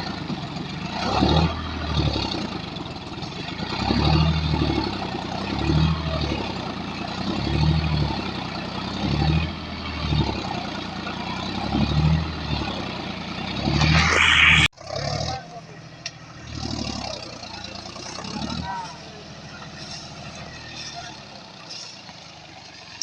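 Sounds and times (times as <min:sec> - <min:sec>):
tractor engine droning under load: 0:00.0 - 0:23.0
loud noisy rush: 0:13.7 - 0:14.7.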